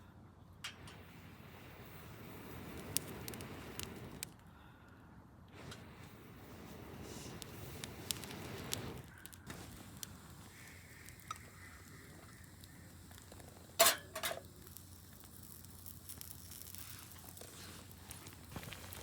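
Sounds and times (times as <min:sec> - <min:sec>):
small crackles: 0:00.6 - 0:19.0
food sizzling in a pan: 0:09.1 - 0:19.0.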